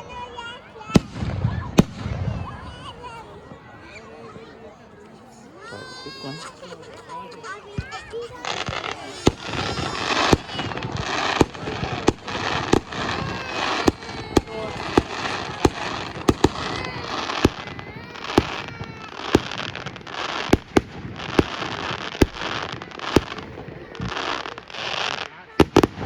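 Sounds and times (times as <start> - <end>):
fireworks banging: 0.0 - 26.0
crackling hiss: 7.8 - 26.0.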